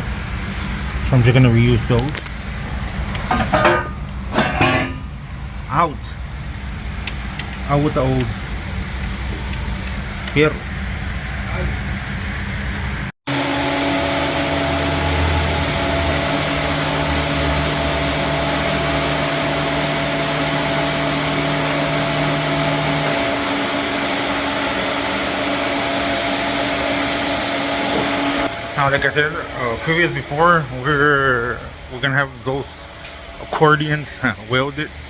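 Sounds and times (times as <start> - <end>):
motor whirring and humming: 13.3 - 30.1.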